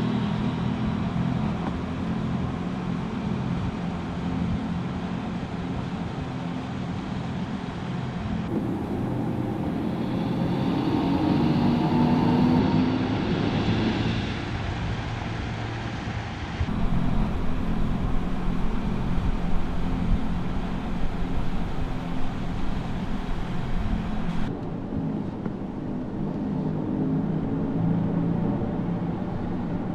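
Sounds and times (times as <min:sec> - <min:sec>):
electric car driving: 0:08.5 - 0:12.9, 0:16.7 - 0:24.5.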